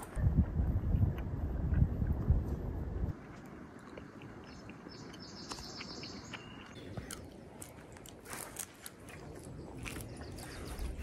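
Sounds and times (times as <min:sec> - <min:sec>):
woodland ambience: 0:00.0 - 0:11.0.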